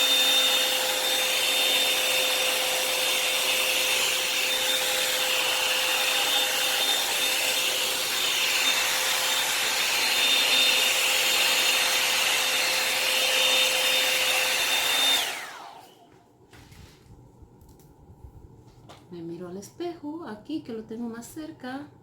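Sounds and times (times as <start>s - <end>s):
hot-air dryer brush whining: 0.0s - 16.2s.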